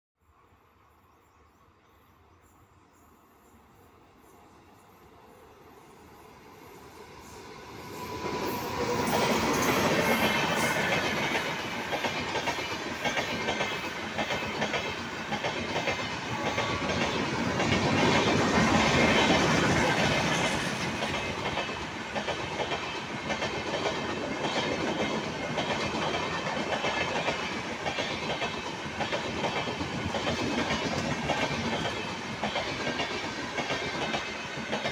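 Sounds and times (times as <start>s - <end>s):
train passing at speed: 0.3s - 34.9s
clickety-clack over rail joints: 7.1s - 34.9s.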